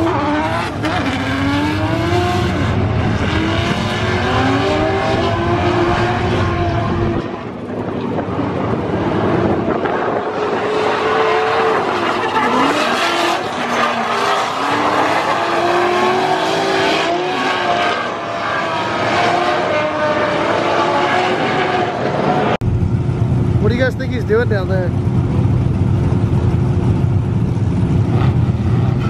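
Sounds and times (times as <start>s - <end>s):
car engines revving: 0.0s - 29.0s
tyre squeal and skidding: 10.6s - 15.6s.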